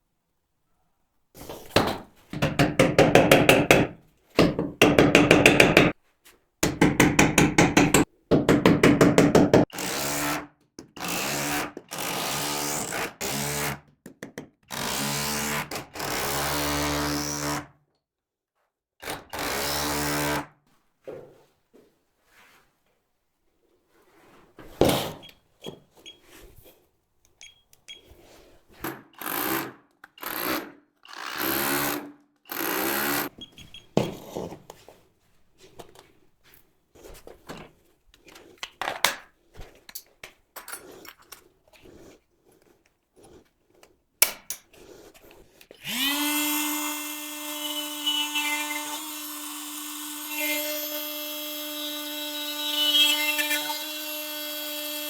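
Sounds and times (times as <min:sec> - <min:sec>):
hand tool knocks: 0:01.8 - 0:05.9, 0:06.6 - 0:09.7
electric power tool humming: 0:45.8 - 0:55.0.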